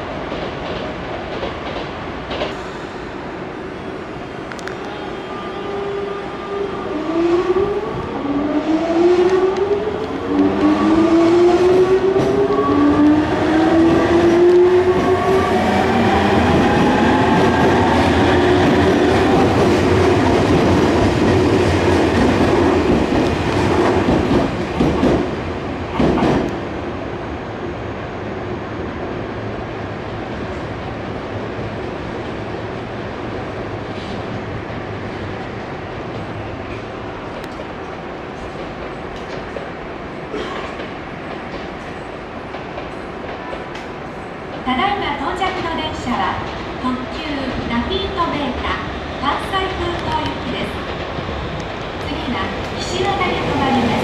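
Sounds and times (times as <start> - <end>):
rail joint clacks: 0.2 - 3.0.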